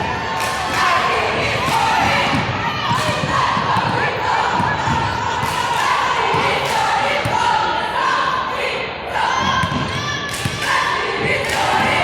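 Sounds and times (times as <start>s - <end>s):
crowd and players shouting: 0.0s - 12.0s
basketball bouncing on court: 1.7s - 5.4s.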